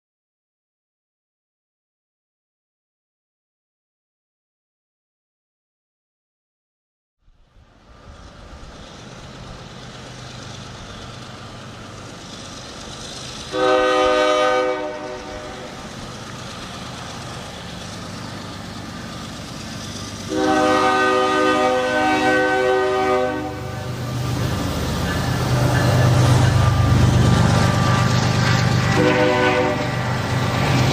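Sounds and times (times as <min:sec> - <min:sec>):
diesel locomotive engine rumble: 0:07.5 - 0:30.9
locomotive air horn blasts: 0:13.5 - 0:15.7, 0:20.3 - 0:23.9, 0:28.9 - 0:30.1.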